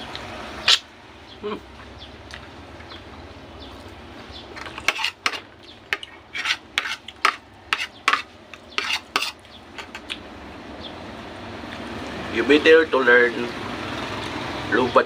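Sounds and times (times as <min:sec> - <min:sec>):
metal utensil scraping a dish: 0:04.6 - 0:10.0.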